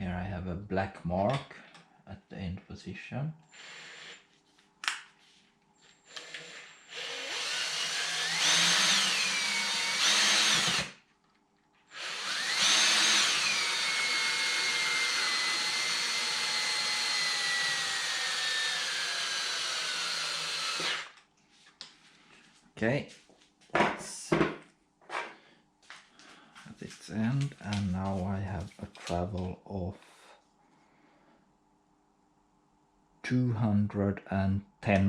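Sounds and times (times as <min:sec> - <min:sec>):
power drill whine: 0:03.5 - 0:04.3, 0:06.0 - 0:11.0, 0:11.9 - 0:21.2.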